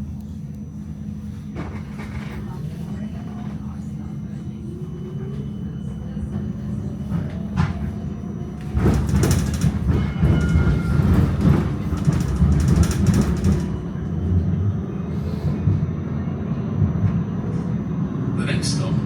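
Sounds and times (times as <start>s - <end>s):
tram rumbling along tracks: 0.0s - 19.0s
tram wheels rattling: 1.5s - 19.0s.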